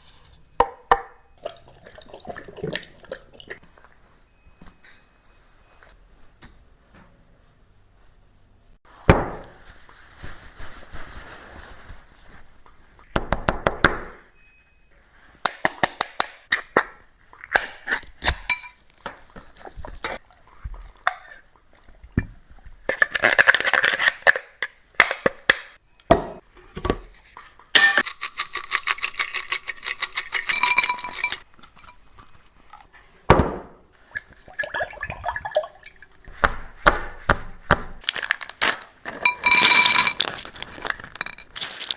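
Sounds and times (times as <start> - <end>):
bowl clinking: 30.3 - 32.1, 39.2 - 41.9.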